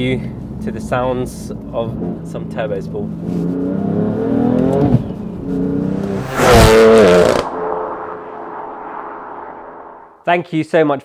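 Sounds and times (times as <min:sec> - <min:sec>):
car engine accelerating hard: 0:01.7 - 0:10.1.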